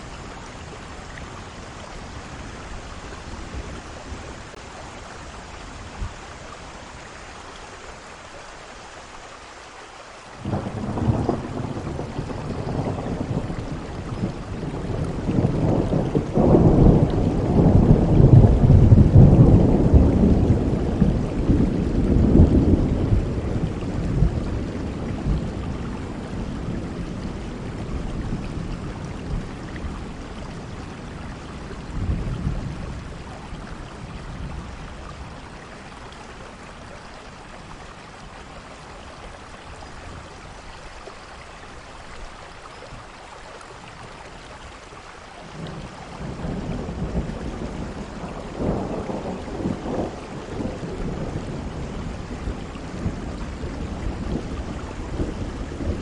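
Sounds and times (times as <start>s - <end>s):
steady rain: 0.0s - 56.0s
rolling thunder: 10.4s - 35.8s, 45.5s - 56.0s.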